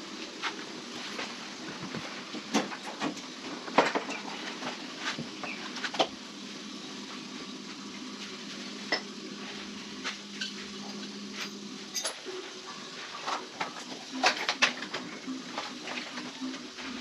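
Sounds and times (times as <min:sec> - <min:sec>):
steady low hum: 0:00.0 - 0:17.0
metal tools clinking: 0:11.9 - 0:12.2.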